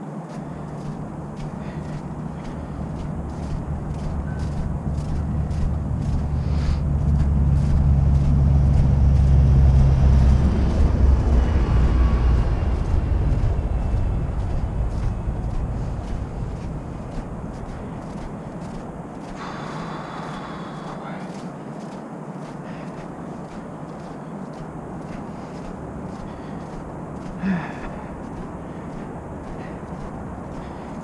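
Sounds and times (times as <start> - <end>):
heavy vehicle engine rumble: 0.6 - 21.4.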